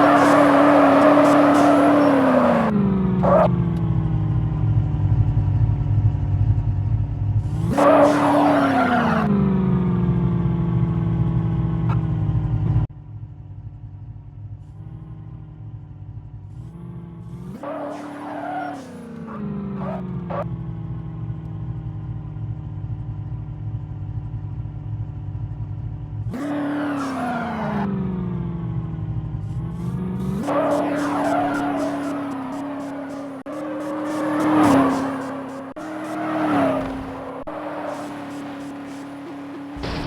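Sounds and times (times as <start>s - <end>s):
hissing screech: 0.0s - 2.7s, 30.4s - 40.0s
car engine revving: 0.0s - 12.9s, 14.2s - 40.0s.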